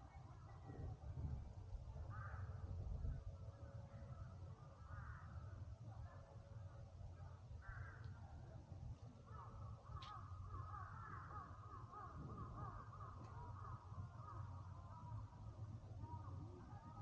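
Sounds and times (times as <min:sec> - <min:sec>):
low background rumble: 0:00.0 - 0:17.0
crow cawing faintly: 0:02.0 - 0:02.8, 0:03.8 - 0:06.2, 0:07.2 - 0:17.0.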